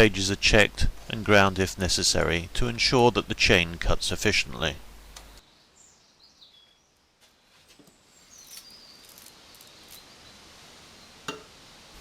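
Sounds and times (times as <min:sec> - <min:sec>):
background hiss: 0:00.0 - 0:12.0
faint bird chirps: 0:05.4 - 0:07.0, 0:07.9 - 0:11.3.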